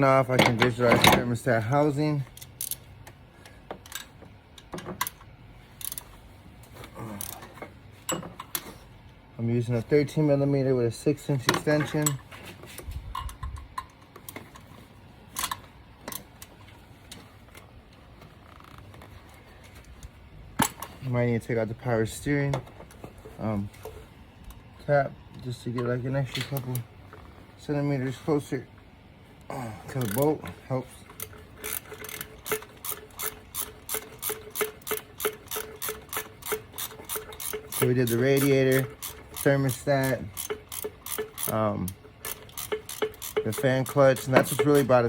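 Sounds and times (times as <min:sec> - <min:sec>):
ratchet metallic clicks: 0:02.2 - 0:03.2, 0:03.8 - 0:06.1, 0:07.2 - 0:07.5, 0:30.0 - 0:30.4, 0:31.0 - 0:45.0.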